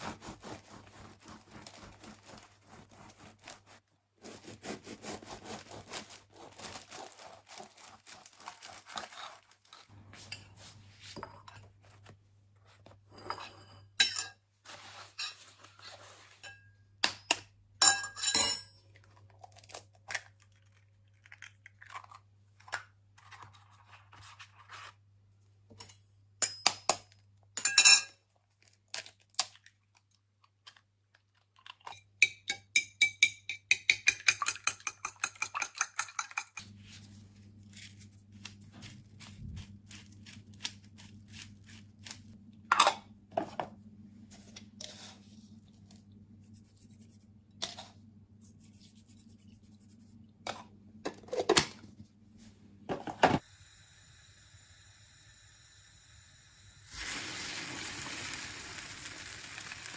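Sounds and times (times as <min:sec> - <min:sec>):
dishes and cutlery clinking: 0:13.2 - 0:14.4, 0:15.0 - 0:15.6, 0:17.8 - 0:18.8, 0:27.6 - 0:28.2.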